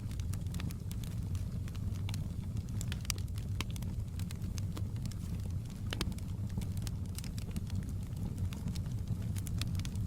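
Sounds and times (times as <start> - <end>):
fire pops and snaps: 0.0 - 10.0
steady low rumble: 0.0 - 10.0
wood fire crackling: 0.0 - 10.0.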